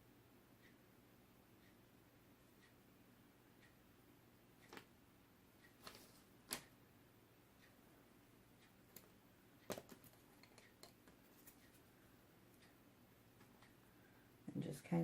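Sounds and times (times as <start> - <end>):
cups and tools clicking and tapping: 9.7 - 11.8.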